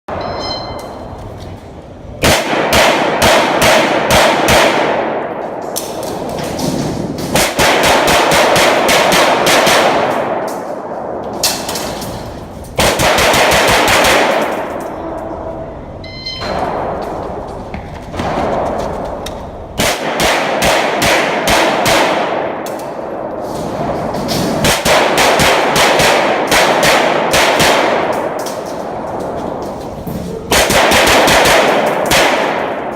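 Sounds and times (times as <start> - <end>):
rapid pistol shots: 2.2 - 5.4, 7.2 - 10.9, 12.8 - 14.8, 19.8 - 23.2, 24.6 - 28.4, 30.5 - 32.9.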